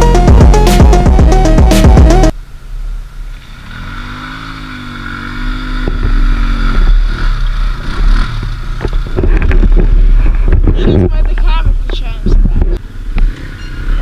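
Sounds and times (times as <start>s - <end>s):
atv engine revving: 3.1s - 14.0s.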